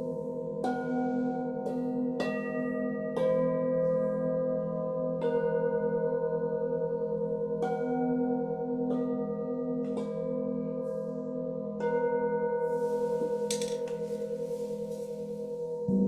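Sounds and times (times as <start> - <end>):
singing bowls ringing: 5.0 - 16.0.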